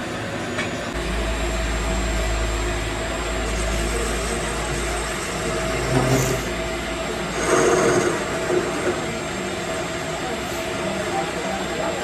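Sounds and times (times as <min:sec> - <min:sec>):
machine motor running: 0:00.8 - 0:11.7
deep hum: 0:01.0 - 0:07.5.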